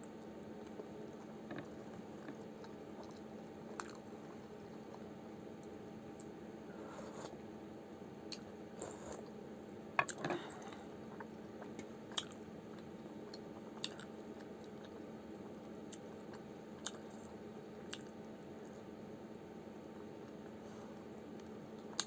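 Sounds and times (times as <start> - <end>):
steady low hum: 0.0 - 22.0
person chewing food: 0.6 - 6.4, 10.0 - 18.2.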